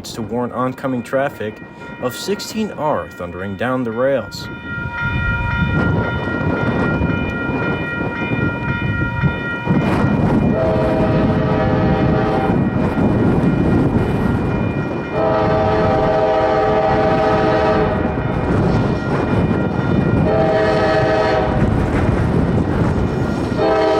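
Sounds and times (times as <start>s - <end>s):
train rumbling on rails: 0.0s - 23.9s
locomotive horn blasts: 10.5s - 12.5s, 15.2s - 18.0s, 20.2s - 21.7s, 23.6s - 23.9s.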